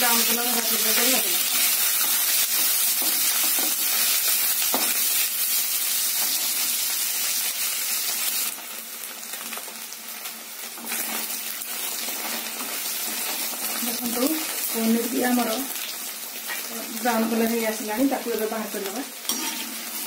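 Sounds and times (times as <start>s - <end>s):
cheese cubes sizzling in oil: 0.0s - 20.0s
spatula scraping a pan: 19.3s - 20.0s.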